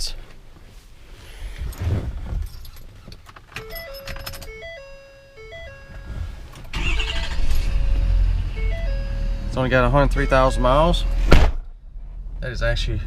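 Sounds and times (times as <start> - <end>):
keys jangling: 3.5 - 4.6
electronic dashboard chime: 3.6 - 11.0
diesel engine starting: 5.6 - 11.3.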